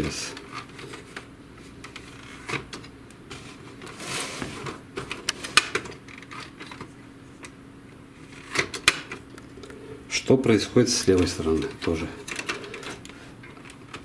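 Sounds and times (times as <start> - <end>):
faint steady hum: 0.0 - 14.0
plastic printer parts clicking: 11.0 - 14.0.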